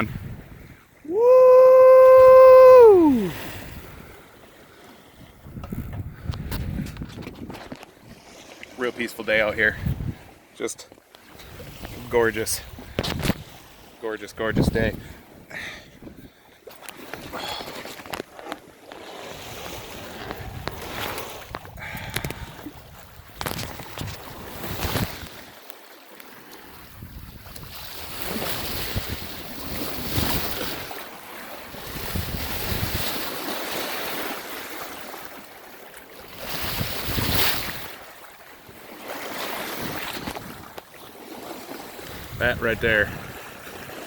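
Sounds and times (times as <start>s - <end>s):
wind buffeting microphone: 0.0s - 1.3s, 5.2s - 8.2s, 9.5s - 10.4s, 11.4s - 13.8s, 14.4s - 16.3s, 19.3s - 25.4s, 26.7s - 31.0s, 31.7s - 33.2s, 36.5s - 38.0s, 42.0s - 44.0s
water splashing along boat hull: 1.7s - 44.0s.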